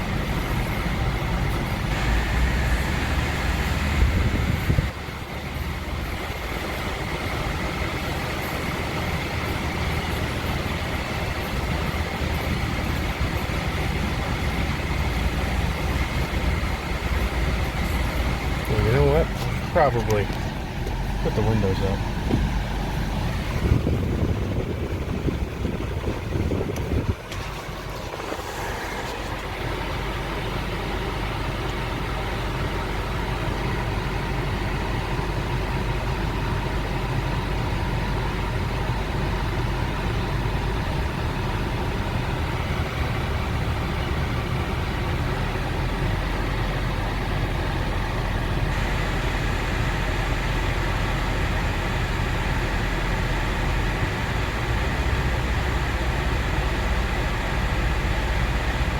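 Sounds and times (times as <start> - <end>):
air conditioning running: 0.0 - 58.9
car engine idling: 0.0 - 58.9.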